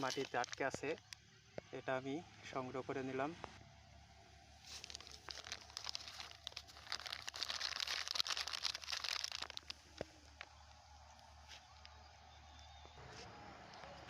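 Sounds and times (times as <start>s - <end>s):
plastic litter crinkling: 0.0s - 1.1s, 4.6s - 10.5s.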